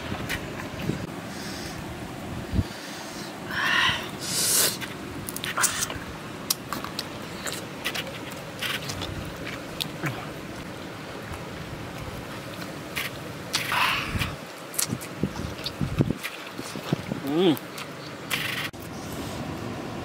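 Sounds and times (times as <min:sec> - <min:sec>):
breathy hiss: 0:02.6 - 0:04.8
person chewing: 0:04.8 - 0:10.4, 0:12.5 - 0:17.1.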